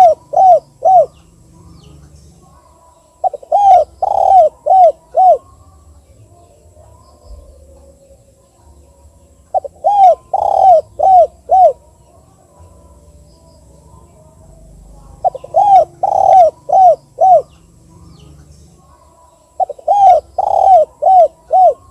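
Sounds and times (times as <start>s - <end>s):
dove cooing: 0.0s - 5.6s, 9.5s - 12.2s, 14.5s - 21.9s.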